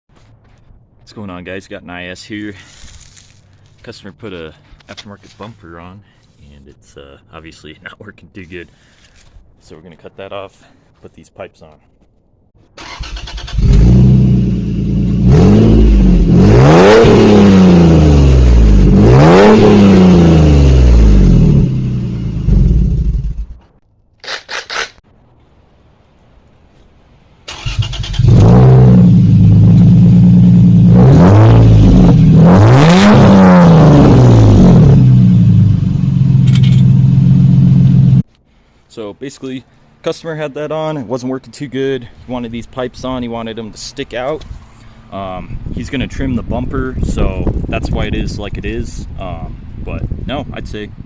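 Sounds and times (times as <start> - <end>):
car engine idling and revving: 13.1 - 23.6, 27.7 - 38.3.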